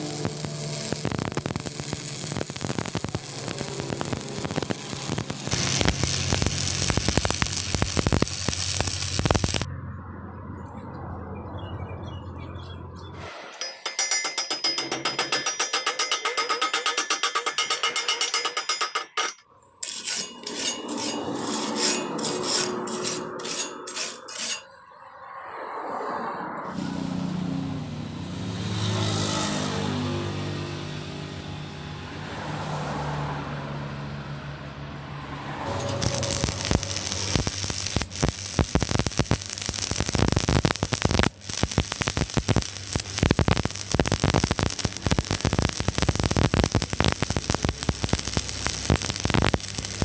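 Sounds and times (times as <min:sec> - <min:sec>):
fast regular ticking: 0:00.0 - 0:09.7, 0:35.7 - 0:50.0
welding arc crackling: 0:00.0 - 0:09.7, 0:13.6 - 0:24.6, 0:35.7 - 0:50.0
welding machine mains hum: 0:00.0 - 0:09.7, 0:35.7 - 0:50.0
hand tool rasping on metal: 0:13.6 - 0:24.7.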